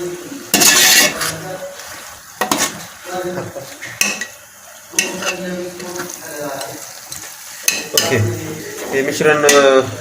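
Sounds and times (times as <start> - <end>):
food sizzling in a pot: 0.0 - 10.0
spoon scraping a pot: 0.5 - 1.4, 2.4 - 2.8.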